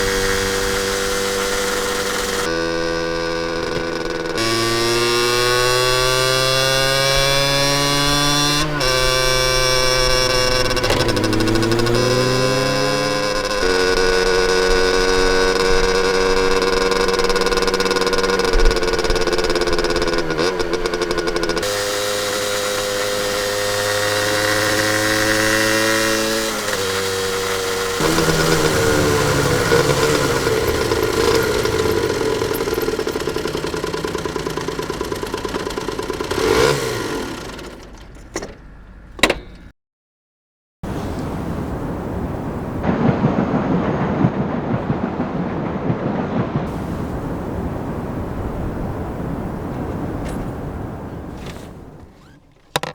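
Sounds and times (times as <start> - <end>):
two-stroke engine accelerating: 0.0 - 38.6.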